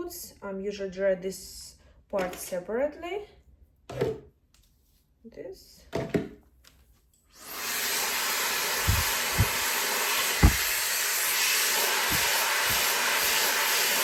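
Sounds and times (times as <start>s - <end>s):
hair dryer blowing air: 7.4s - 14.0s
dull low thumps: 8.8s - 9.6s, 10.4s - 10.8s.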